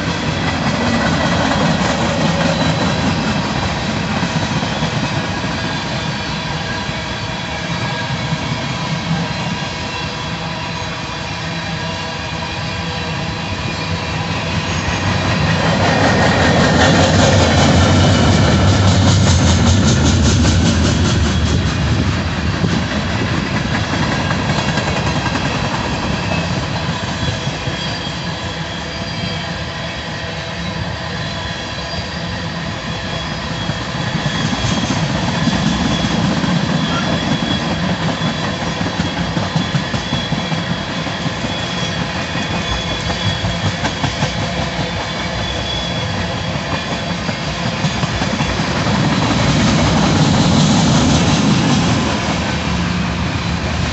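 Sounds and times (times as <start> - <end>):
train wheels rumbling on rails: 0.0 - 53.9
high-pitched wheel squeal: 25.4 - 47.0.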